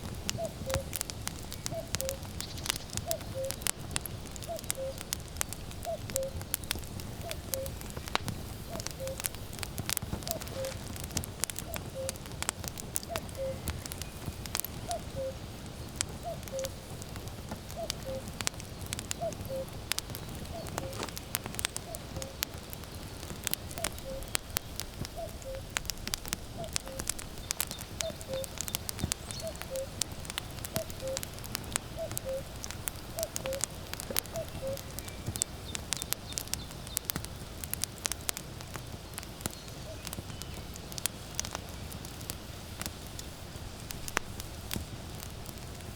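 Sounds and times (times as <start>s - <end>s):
firewood crackling and popping: 0.0s - 45.9s
cuckoo calling: 0.3s - 3.7s, 4.4s - 5.2s, 5.8s - 8.1s, 8.7s - 9.4s, 10.2s - 10.9s, 11.6s - 12.2s, 13.0s - 15.5s, 16.2s - 16.9s, 17.7s - 18.4s, 19.1s - 22.5s, 23.7s - 24.5s, 25.1s - 25.7s, 26.5s - 30.0s, 30.7s - 35.4s.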